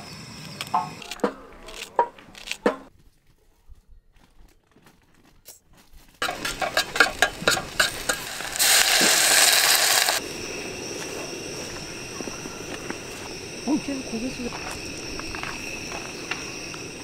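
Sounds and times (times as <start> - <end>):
tongs clacking against metal: 6.2 - 9.4
food sizzling in oil: 6.2 - 10.6
water hissing in hot tin: 6.2 - 10.9.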